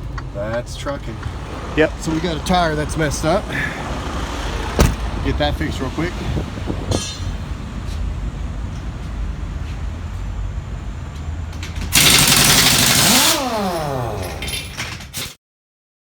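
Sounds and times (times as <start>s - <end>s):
diesel truck engine idling: 0.0s - 13.2s
engine winding down: 11.4s - 15.0s.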